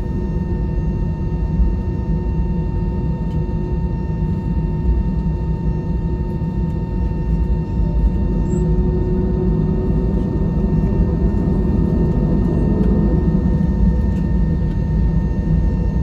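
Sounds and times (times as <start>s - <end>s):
aircraft cabin engine rumble: 0.0s - 16.0s
thin steady whine: 7.0s - 16.0s.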